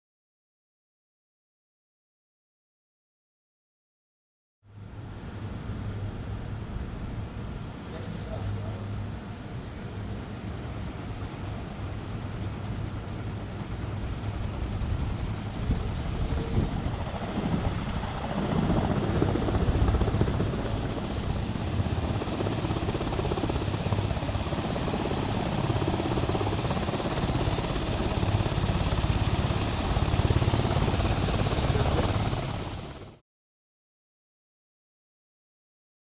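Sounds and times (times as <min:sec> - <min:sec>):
electric aircraft propeller running: 0:10.4 - 0:33.2.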